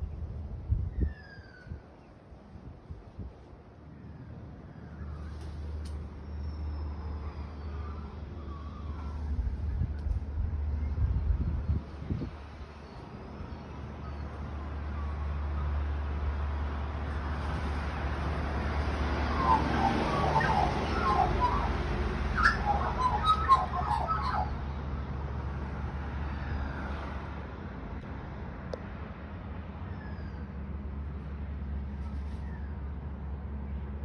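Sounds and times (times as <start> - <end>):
passing vehicle: 4.5 - 34.0
birds chirping and calling: 19.1 - 24.8.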